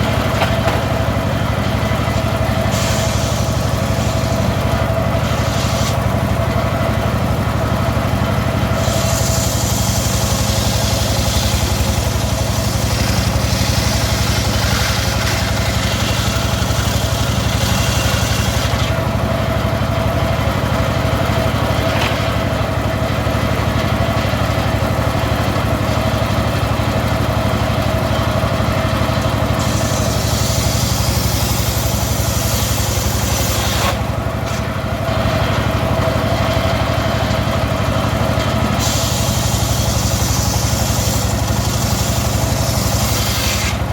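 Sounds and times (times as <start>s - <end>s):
circular saw engine running: 0.0s - 43.9s
saw blade hissing through wood: 1.8s - 6.1s, 8.7s - 19.0s, 29.5s - 34.6s, 38.7s - 43.9s.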